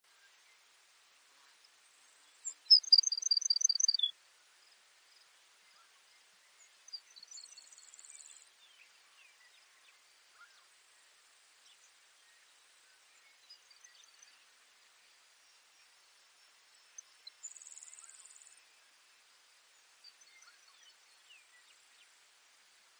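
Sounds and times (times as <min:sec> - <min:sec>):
insects or field noise hiss: 0:00.1 - 0:22.9
sparrow singing: 0:02.4 - 0:04.1.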